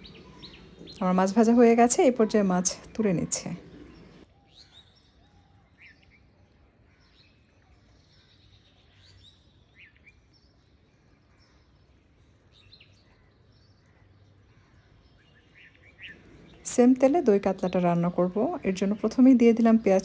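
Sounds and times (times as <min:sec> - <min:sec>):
faint background hum: 0:00.0 - 0:04.3, 0:16.0 - 0:20.0
faint bird chirps: 0:00.0 - 0:20.0.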